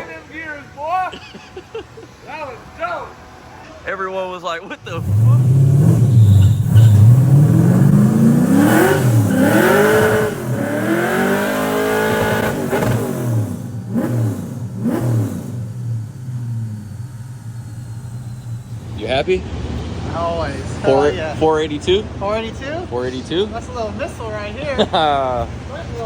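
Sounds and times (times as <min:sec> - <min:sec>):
car engine revving: 0:04.8 - 0:22.2.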